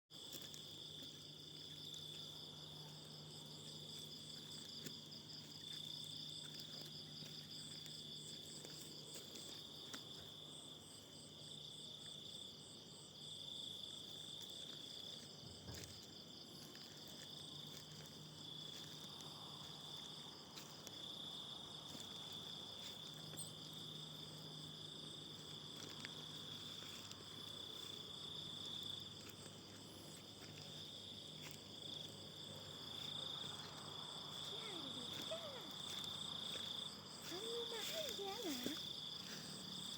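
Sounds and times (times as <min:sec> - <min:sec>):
insects trilling: 0:13.7 - 0:39.9.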